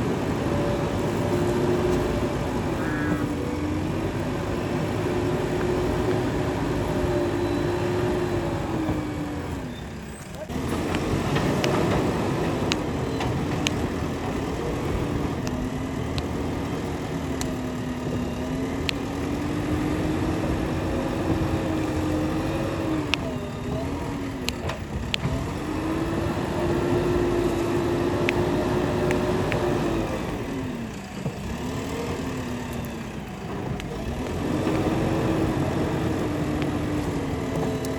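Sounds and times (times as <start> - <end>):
diesel engine working under load: 0.0 - 37.9
sharp clicks and knocks: 10.2 - 16.4.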